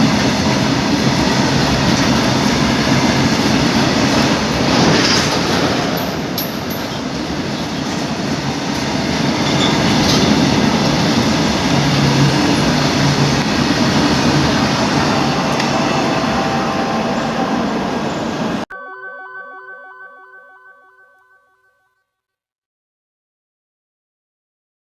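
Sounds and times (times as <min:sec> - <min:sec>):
train rumbling past: 0:00.0 - 0:18.6.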